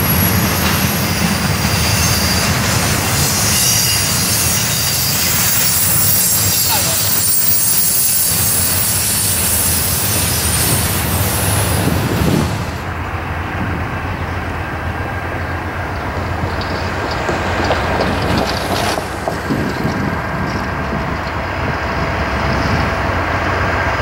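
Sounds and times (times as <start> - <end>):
train wheels hissing and squealing: 0.0 - 12.9
low train rumble: 0.0 - 24.0.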